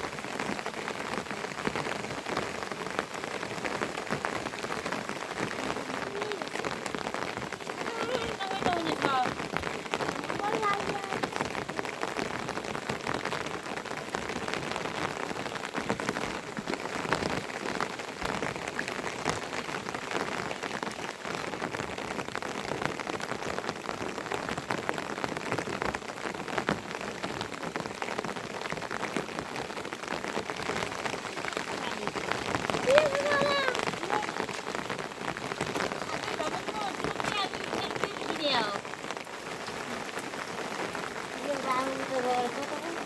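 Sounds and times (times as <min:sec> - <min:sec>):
raindrops ticking: 0:00.0 - 0:43.0
steady rain falling: 0:00.0 - 0:43.0.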